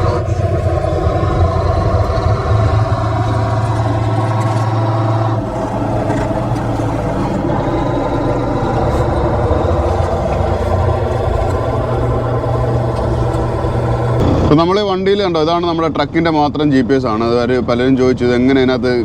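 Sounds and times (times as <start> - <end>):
diesel truck engine humming: 0.0 - 14.6.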